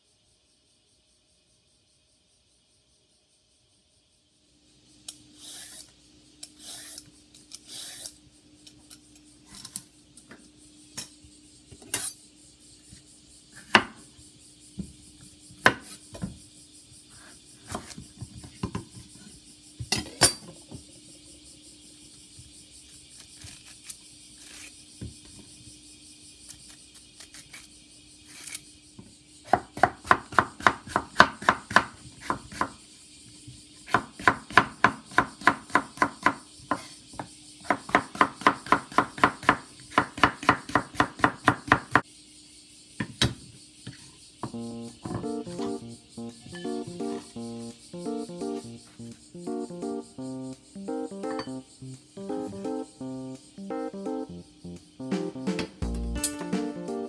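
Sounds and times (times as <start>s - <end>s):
knife chopping on wooden board: 13.7s - 14.0s, 37.7s - 42.0s.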